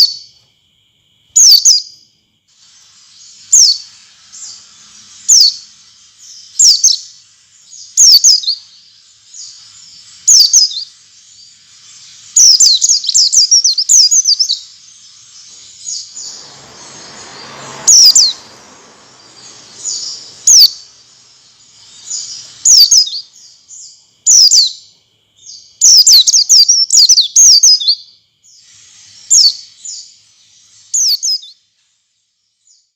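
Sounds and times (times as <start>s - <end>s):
bird chirping calls: 1.4s - 31.7s
brief noise hiss: 15.8s - 22.9s.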